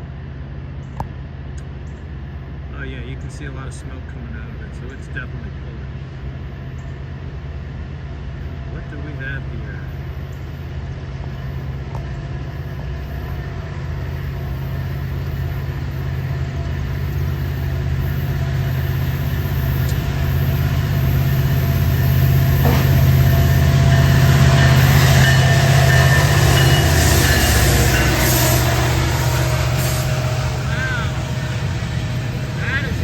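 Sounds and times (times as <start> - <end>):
diesel locomotive engine drone: 0.0 - 33.0
train wheels on rails: 6.1 - 33.0.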